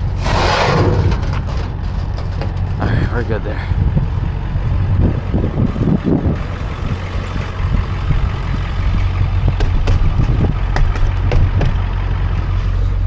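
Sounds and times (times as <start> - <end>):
truck engine idling: 1.4 - 13.0
sharp clicks and knocks: 2.0 - 3.4, 7.1 - 12.0.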